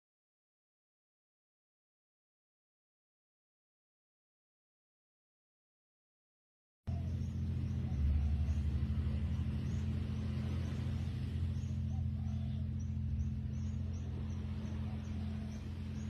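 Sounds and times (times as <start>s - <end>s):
motor humming: 6.9s - 16.0s.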